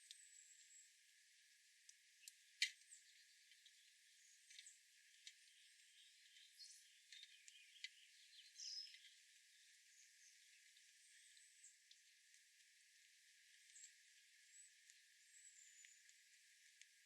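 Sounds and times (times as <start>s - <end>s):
bird chirps: 5.6s - 10.5s.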